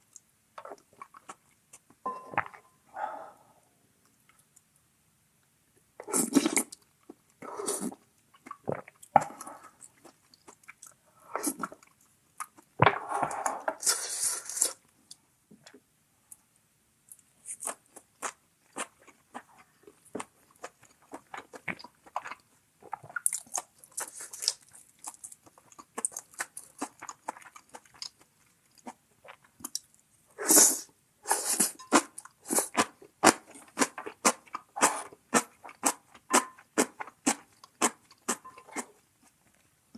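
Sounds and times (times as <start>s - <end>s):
person chewing and crunching: 17.4s - 29.9s, 31.8s - 39.4s.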